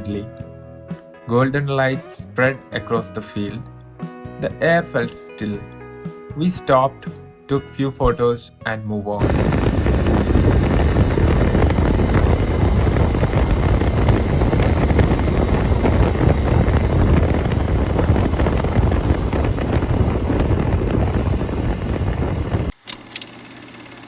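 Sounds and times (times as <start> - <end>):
wind buffeting microphone: 9.2 - 22.7
steady low hum: 9.2 - 22.8.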